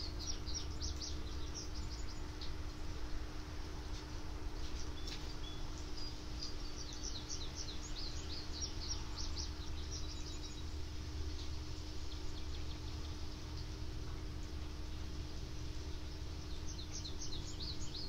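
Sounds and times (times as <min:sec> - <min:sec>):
birds chirping: 0:00.0 - 0:02.9, 0:04.8 - 0:13.8, 0:15.8 - 0:18.0
low steady hum: 0:00.0 - 0:18.0.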